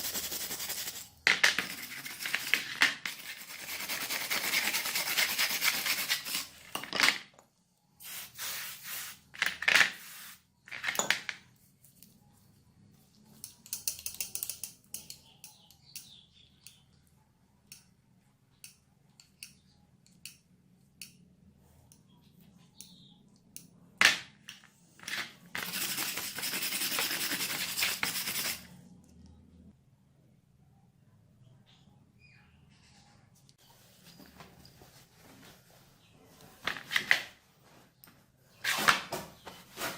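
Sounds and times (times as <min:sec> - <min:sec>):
metal tool clicks: 0:13.4 - 0:16.8.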